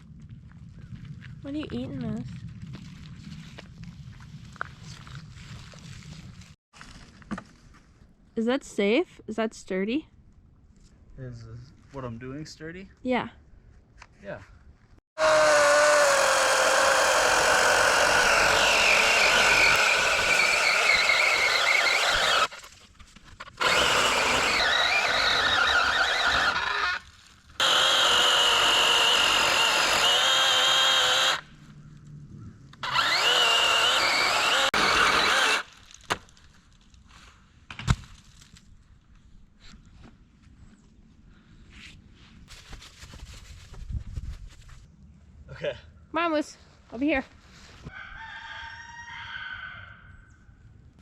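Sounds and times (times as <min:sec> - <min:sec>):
electric chainsaw cutting wood: 0:15.2 - 0:22.6, 0:23.4 - 0:31.5, 0:32.8 - 0:35.8.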